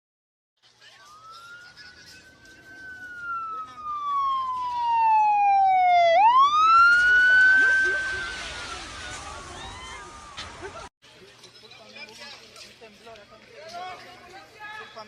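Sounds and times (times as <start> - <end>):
wailing siren: 1.0 - 10.5.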